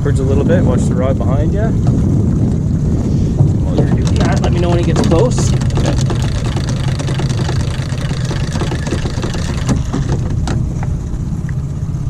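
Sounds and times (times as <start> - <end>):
outboard motor humming: 0.0 - 12.0.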